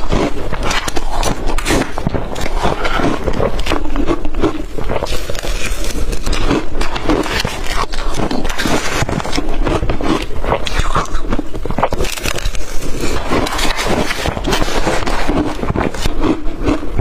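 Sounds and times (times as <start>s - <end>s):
crushed ice being chewed: 0.0s - 17.0s.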